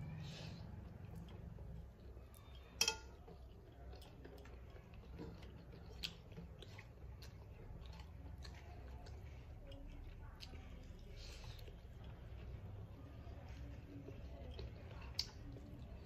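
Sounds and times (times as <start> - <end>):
person chewing and smacking: 0.6 - 16.0
metallic clink: 2.8 - 3.2.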